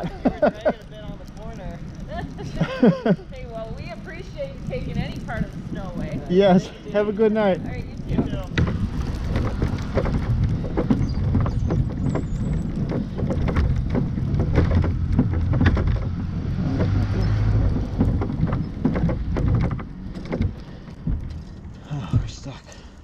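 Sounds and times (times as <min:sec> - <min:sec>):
low rumble of pedalled vehicle: 0:00.0 - 0:23.0
irregular clicks and knocks: 0:07.6 - 0:23.0.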